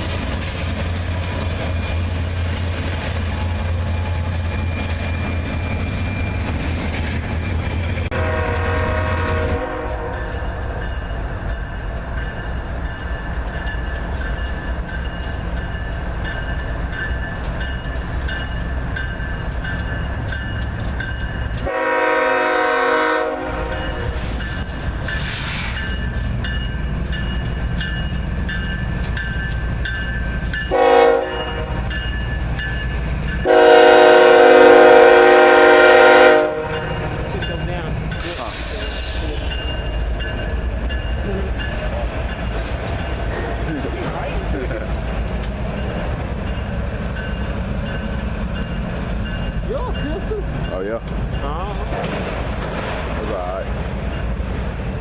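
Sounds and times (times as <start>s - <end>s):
train rumbling on rails: 0.0s - 55.0s
locomotive horn blasts: 8.1s - 10.4s, 21.6s - 24.2s, 30.7s - 31.9s, 33.4s - 36.9s.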